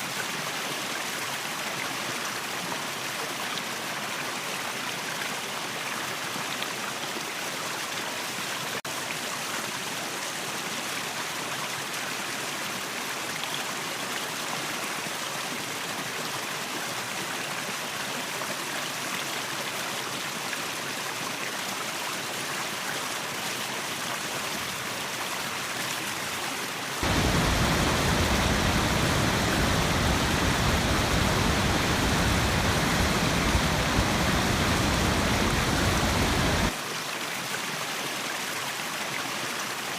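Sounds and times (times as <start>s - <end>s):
waterfall rushing water: 24.8s - 39.2s.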